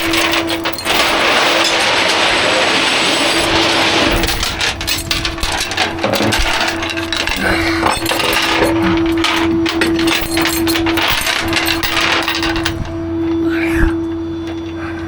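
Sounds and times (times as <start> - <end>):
metallic clinks: 0.0 - 2.0, 4.1 - 12.9
mechanical hum: 0.0 - 15.0.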